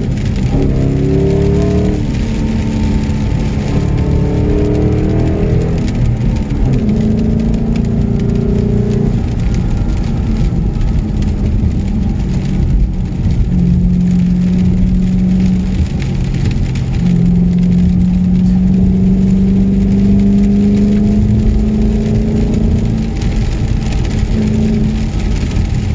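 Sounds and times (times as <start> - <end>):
car engine pulling: 0.0 - 25.9
road and tyre noise: 0.0 - 25.9.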